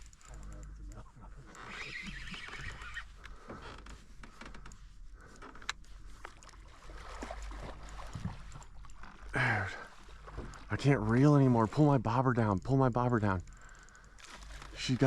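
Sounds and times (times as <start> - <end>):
small clicks and knocks: 0.0 - 6.6
river water around boat: 0.0 - 15.0.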